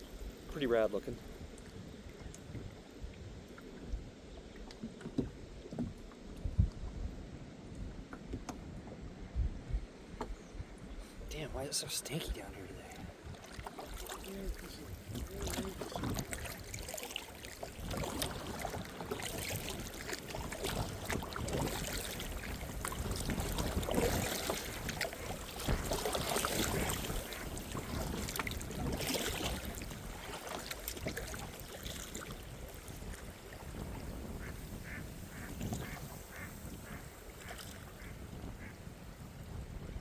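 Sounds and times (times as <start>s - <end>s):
kayak paddling: 0.0s - 9.2s, 10.1s - 40.0s
water splashing: 11.4s - 38.7s
waterfowl calling: 34.4s - 38.8s.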